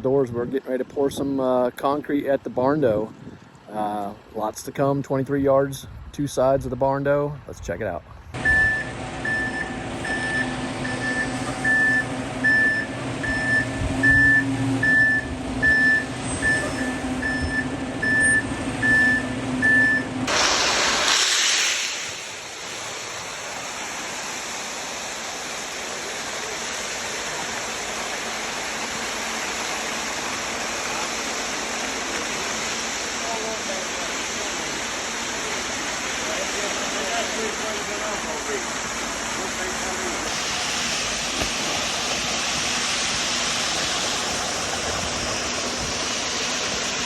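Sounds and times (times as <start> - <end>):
reversing alarm beeping: 8.4 - 20.3
truck engine running: 8.4 - 21.4, 22.0 - 47.0
steady rushing noise: 20.2 - 31.3, 37.0 - 47.0.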